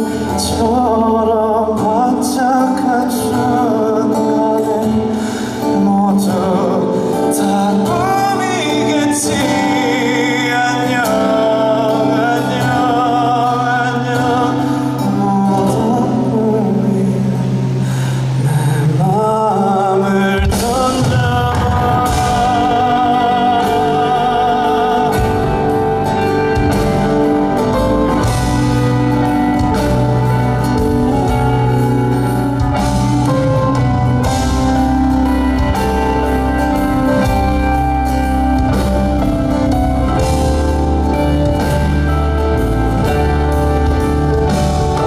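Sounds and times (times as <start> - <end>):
live band playing: 0.0 - 45.0
drum kit beat: 20.4 - 45.0.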